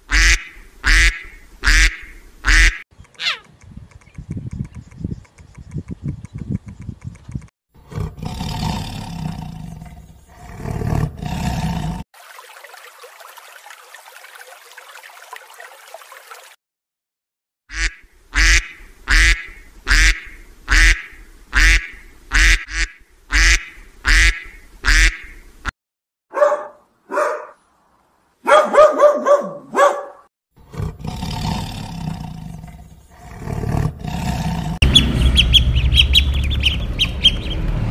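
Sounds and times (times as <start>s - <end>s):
duck quacking: 0.1s - 3.5s, 17.7s - 25.4s.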